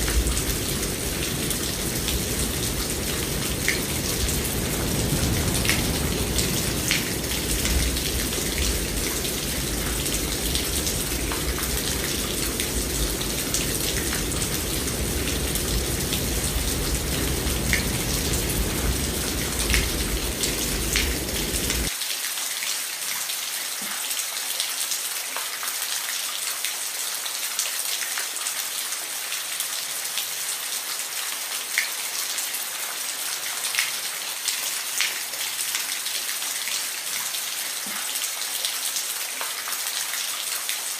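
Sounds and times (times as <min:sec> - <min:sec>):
rain drops pattering: 0:00.0 - 0:23.3.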